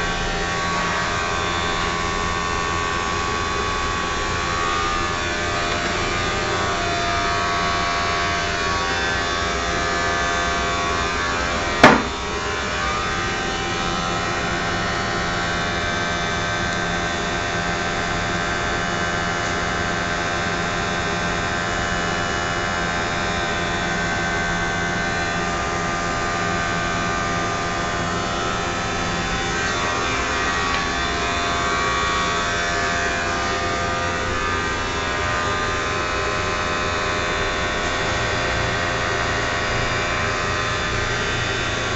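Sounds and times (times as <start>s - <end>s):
sharp knock: 11.8s - 12.2s.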